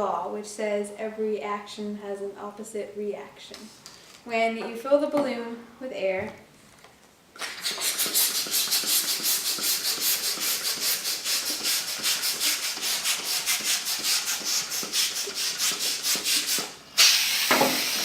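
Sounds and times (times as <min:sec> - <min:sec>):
hand air pump strokes: 0:07.4 - 0:18.0.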